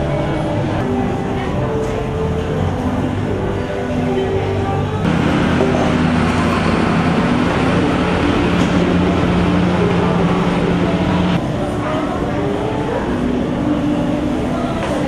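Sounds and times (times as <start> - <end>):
traffic noise: 0.0 - 15.0
vehicle engine running: 4.9 - 15.0.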